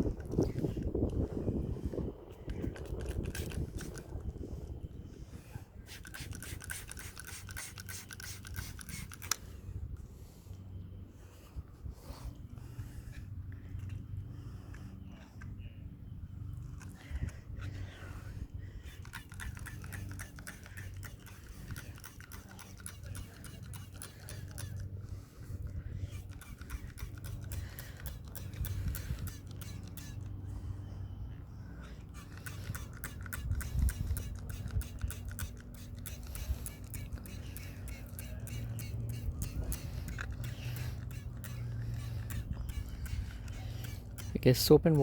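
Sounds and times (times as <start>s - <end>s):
low steady hum: 0.0s - 45.0s
hand scrubbing soapy windscreen: 5.5s - 10.4s, 16.8s - 45.0s.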